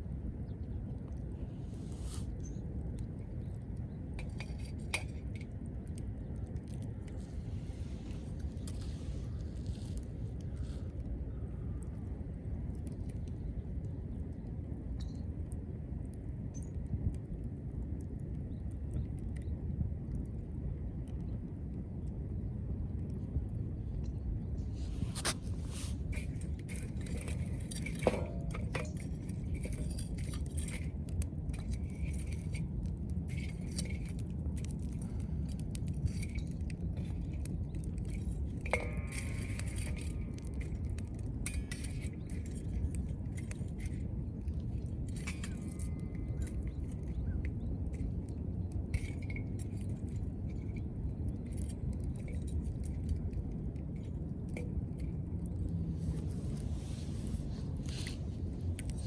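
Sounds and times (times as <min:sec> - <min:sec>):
wood fire burning: 0:00.0 - 0:59.0
fire crackling and popping: 0:00.1 - 0:59.0
light metallic clinks: 0:25.7 - 0:59.0.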